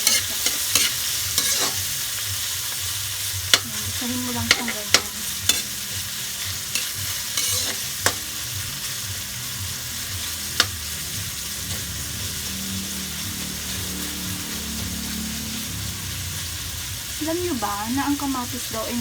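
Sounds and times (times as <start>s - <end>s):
food sizzling in a wok: 0.0s - 19.0s
spatula knocking against wok: 4.4s - 5.7s, 6.7s - 8.3s, 10.6s - 10.9s.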